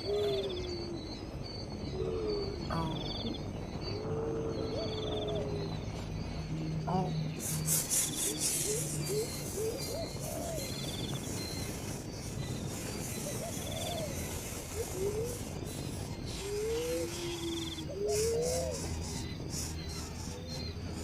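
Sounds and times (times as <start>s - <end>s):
birds whistling: 0.0s - 21.0s
insect buzzy trill: 6.3s - 21.0s.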